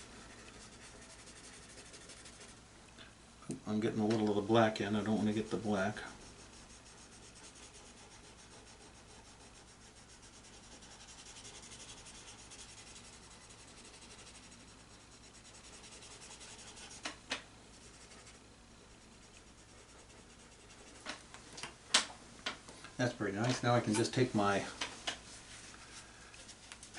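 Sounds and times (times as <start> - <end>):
pencil rubbing on paper: 0.0 - 2.6, 5.0 - 21.2.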